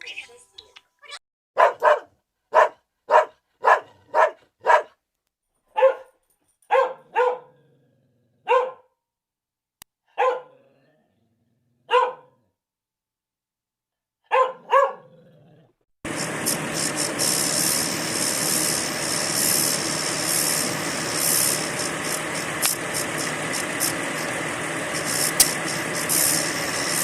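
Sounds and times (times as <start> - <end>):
dog barking: 1.6 - 5.0, 5.7 - 7.6, 8.4 - 9.0, 10.1 - 10.6, 11.9 - 12.4, 14.2 - 15.1.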